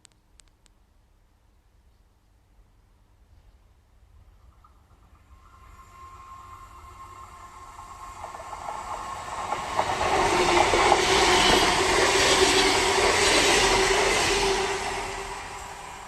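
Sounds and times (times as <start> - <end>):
clicking train wheels: 4.4 - 16.0
train passing: 4.4 - 16.0
sustained train tone: 5.1 - 16.0.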